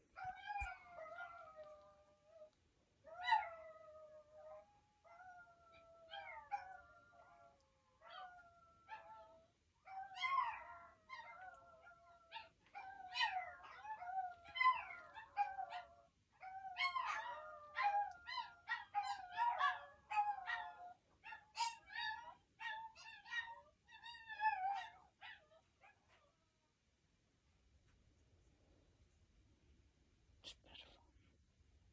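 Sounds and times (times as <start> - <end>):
dogs howling and yipping: 0.2 - 2.4, 3.1 - 26.2.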